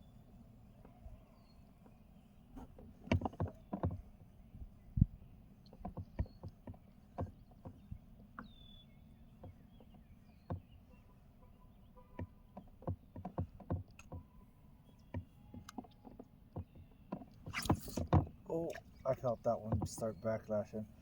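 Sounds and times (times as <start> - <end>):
rumble of water and wind: 0.0 - 21.0
fishing gear knocks and clicks: 2.6 - 4.0, 12.2 - 14.4, 15.0 - 20.2.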